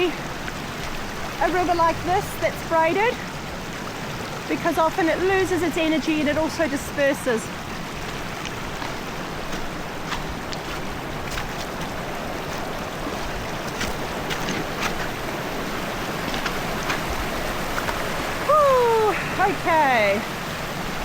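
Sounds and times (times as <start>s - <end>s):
river rushing: 0.0s - 21.0s
heavy rain falling: 4.4s - 21.0s
raindrops tapping close by: 4.9s - 20.0s.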